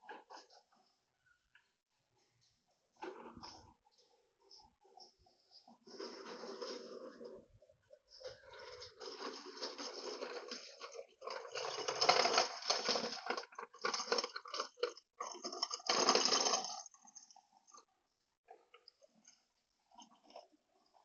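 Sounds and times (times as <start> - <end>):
trolley wheels rattling: 3.0 - 17.8.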